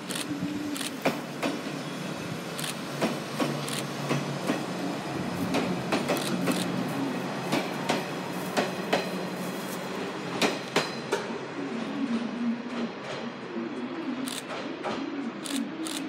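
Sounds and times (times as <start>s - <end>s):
train low hum and running noise: 0.0s - 16.0s
train wheels clacking over rail joints: 0.9s - 1.7s, 2.6s - 4.8s, 5.4s - 6.8s, 7.5s - 9.4s, 10.3s - 11.4s.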